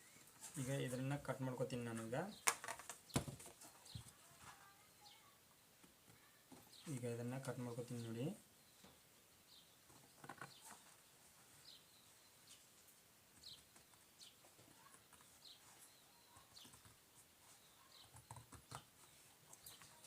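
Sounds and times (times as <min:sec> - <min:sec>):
faint high chirps: 0:11.6 - 0:20.0.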